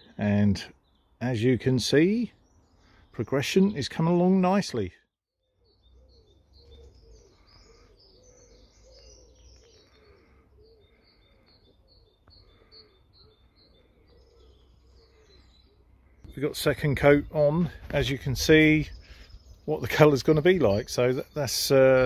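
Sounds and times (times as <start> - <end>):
high bird chirps: 5.4 - 22.0
lower bird call: 5.4 - 22.0.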